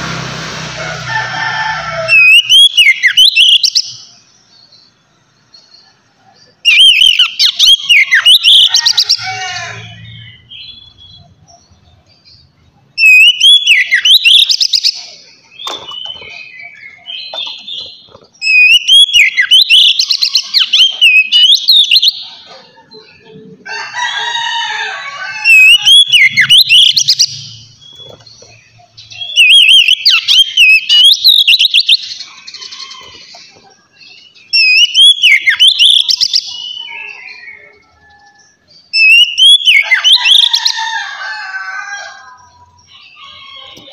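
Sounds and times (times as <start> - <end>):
bird singing whistled phrases: 2.2 - 3.8, 6.7 - 8.7, 13.0 - 14.9, 18.4 - 22.2, 29.2 - 32.1, 34.5 - 37.7, 38.9 - 40.2.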